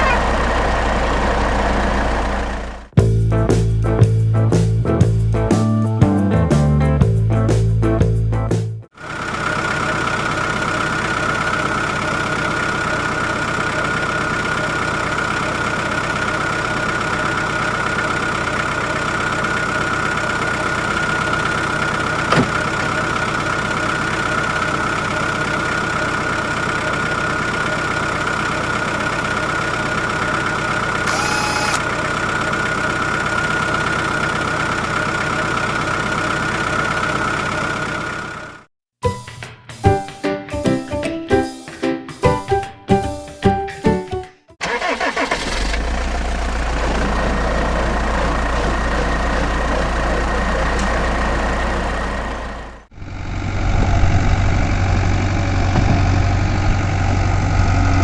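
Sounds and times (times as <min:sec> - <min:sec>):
engine droning: 0:09.0 - 0:38.6, 0:44.6 - 0:58.0
short beep: 0:31.1 - 0:31.8
single click: 0:31.1 - 0:31.8.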